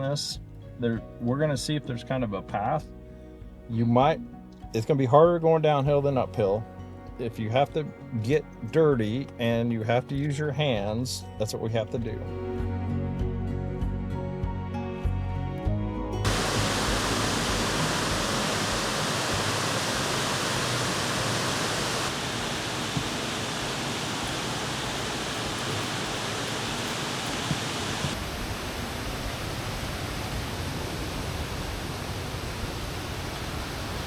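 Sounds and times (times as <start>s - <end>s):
waterfall roaring: 16.3s - 34.0s.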